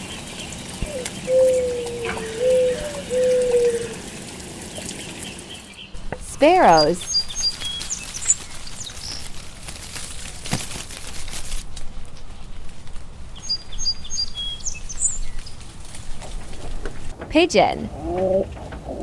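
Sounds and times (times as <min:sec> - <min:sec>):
sparrows chirping: 0:04.8 - 0:11.6.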